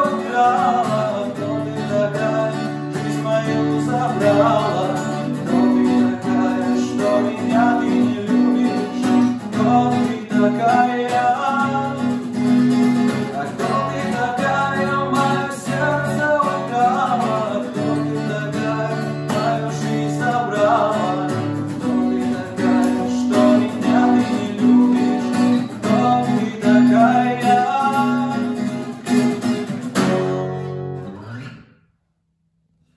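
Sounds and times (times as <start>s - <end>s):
acoustic guitar music: 0.0s - 32.9s.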